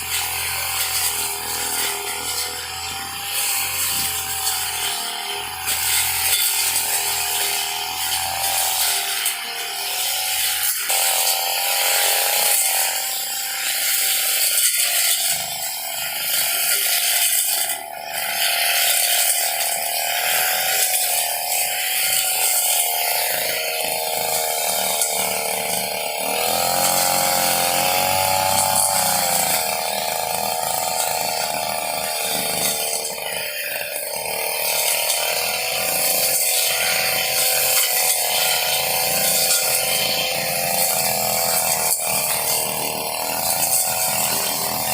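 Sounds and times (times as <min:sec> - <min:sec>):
brush cutter engine running: 0:00.0 - 0:44.9.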